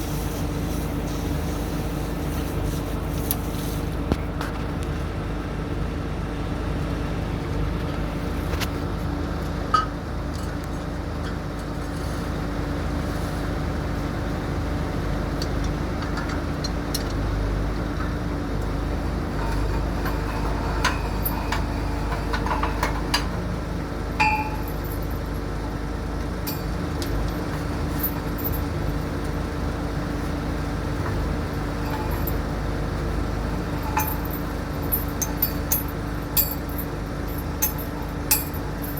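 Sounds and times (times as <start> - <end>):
diesel engine running: 0.0 - 38.9
metallic clinks and knocks: 19.4 - 23.4, 24.1 - 25.8, 26.4 - 29.1, 31.5 - 32.5, 33.5 - 38.9.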